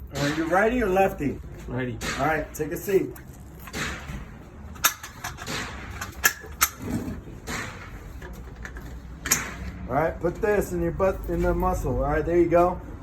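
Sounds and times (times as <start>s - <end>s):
sharp clicks or knocks: 3.3s - 9.7s.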